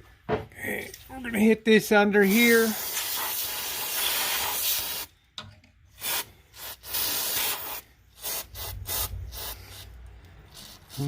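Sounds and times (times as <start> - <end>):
aerosol can spraying: 2.3 - 5.1, 6.0 - 11.0.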